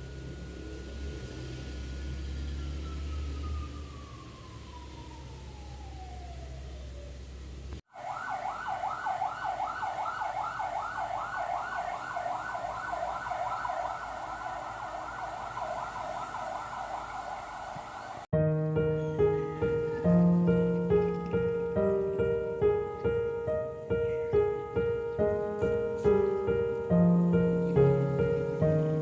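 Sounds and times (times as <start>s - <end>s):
engine rumble: 0.0s - 7.8s, 10.0s - 29.0s
siren wailing: 2.6s - 7.2s, 7.9s - 18.3s.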